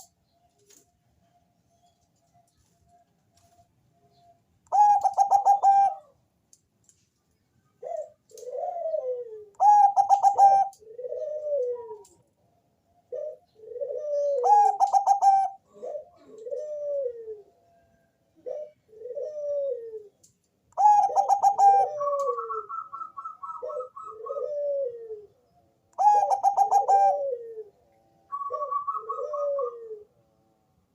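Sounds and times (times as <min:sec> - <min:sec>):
dove cooing song: 0:04.0 - 0:06.2, 0:07.8 - 0:12.3, 0:12.9 - 0:30.2.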